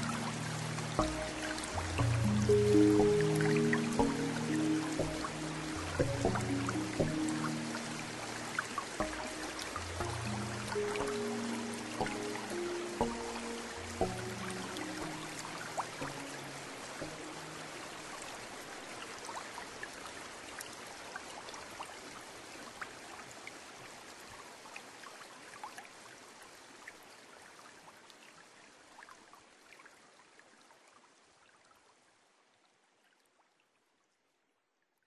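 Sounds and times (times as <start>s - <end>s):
water running and trickling: 0.0s - 28.0s
small water drips: 0.0s - 34.2s.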